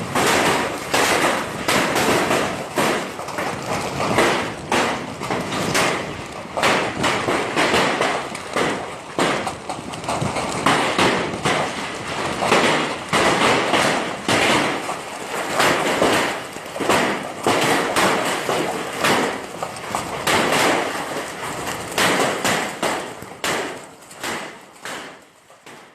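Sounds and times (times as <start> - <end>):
hailstones striking hard surfaces: 0.0 - 25.9.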